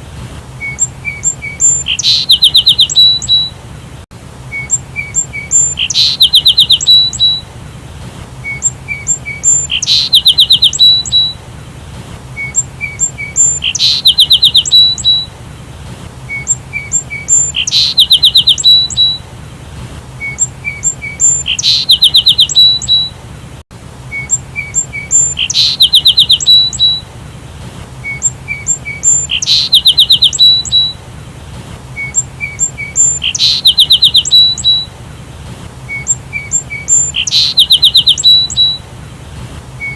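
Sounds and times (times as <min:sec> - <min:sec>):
sparrow chirping and trilling: 0:00.6 - 0:03.5, 0:04.5 - 0:07.4, 0:08.4 - 0:11.4, 0:12.4 - 0:15.3, 0:16.3 - 0:19.2, 0:20.2 - 0:23.1, 0:24.1 - 0:27.0, 0:28.0 - 0:31.0, 0:32.0 - 0:34.9, 0:35.9 - 0:38.8.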